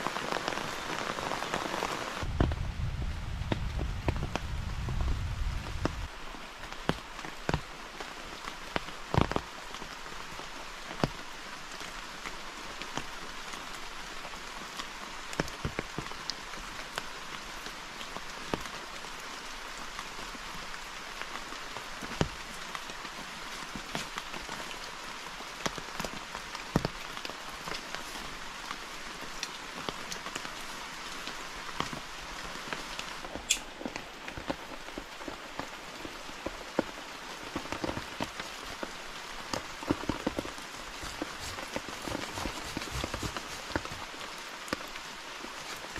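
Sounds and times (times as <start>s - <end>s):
steady rain hiss: 0.0s - 45.9s
low rumble: 2.2s - 6.1s.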